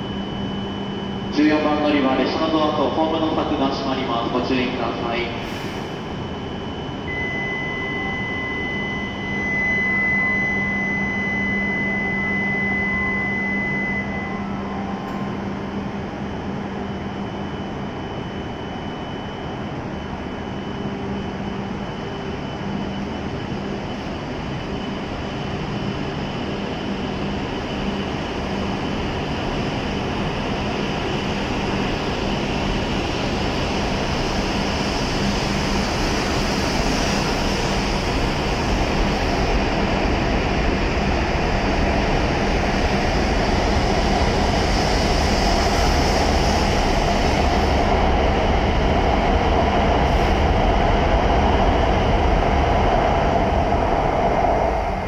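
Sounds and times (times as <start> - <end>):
train rushing and rumbling past: 32.7 - 55.0.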